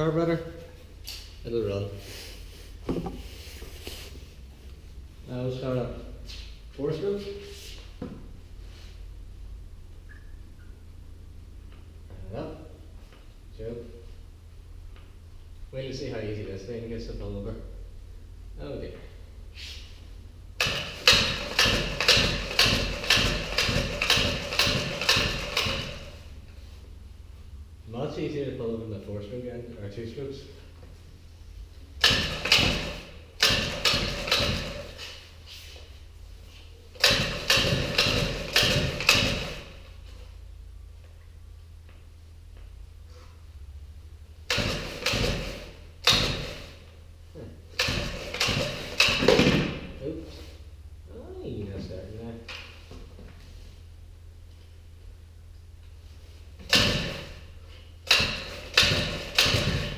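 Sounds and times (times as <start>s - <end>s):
pull-cord starter strokes: 20.6s - 26.2s, 32.0s - 35.2s, 37.0s - 39.8s, 44.5s - 46.8s, 58.0s - 59.9s.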